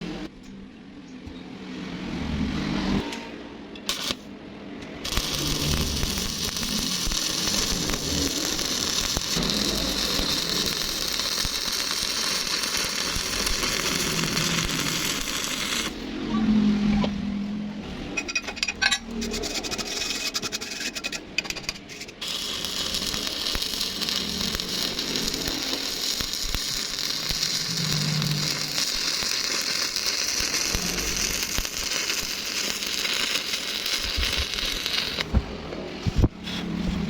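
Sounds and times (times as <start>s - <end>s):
welding arc crackling and hissing: 3.9s - 4.3s, 5.0s - 16.0s, 22.1s - 35.4s.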